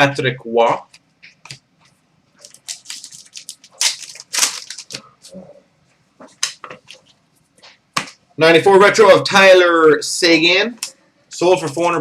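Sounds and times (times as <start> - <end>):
cards crinkling and rustling: 2.4 - 5.1.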